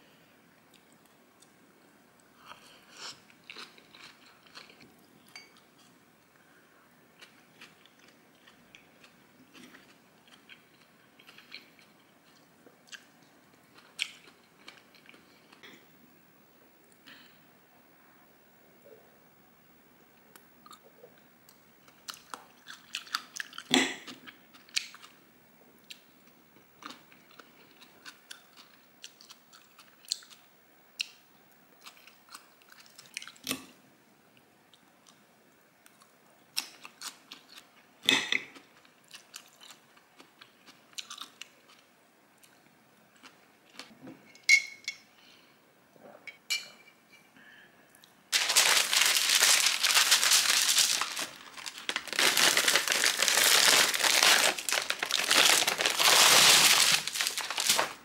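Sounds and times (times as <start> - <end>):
crunching and chewing food: 2.4 - 5.0, 7.2 - 15.7, 20.6 - 25.2, 25.8 - 31.2, 31.8 - 33.6, 35.8 - 37.9, 38.5 - 43.9, 48.0 - 58.0.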